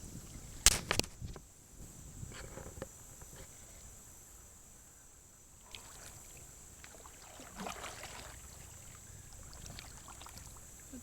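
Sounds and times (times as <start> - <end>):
paddle splashing in water: 5.6 - 11.0.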